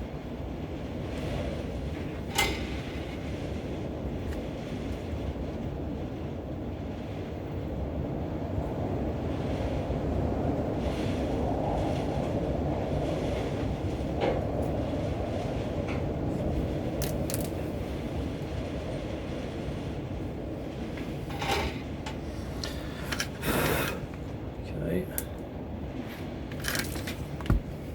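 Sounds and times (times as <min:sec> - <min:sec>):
wind rumbling on microphone: 0:00.0 - 0:27.9
light clicks of small parts: 0:17.0 - 0:17.6.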